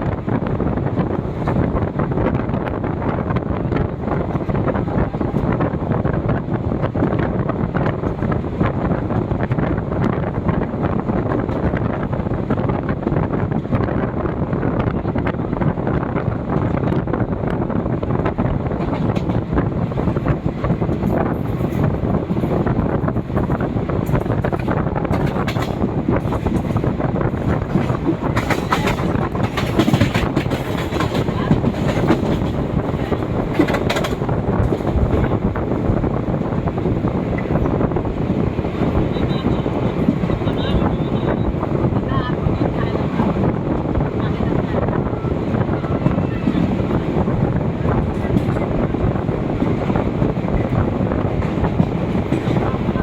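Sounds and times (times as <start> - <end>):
wind buffeting microphone: 0.0 - 53.0
train wheel clicks on track: 20.9 - 35.3.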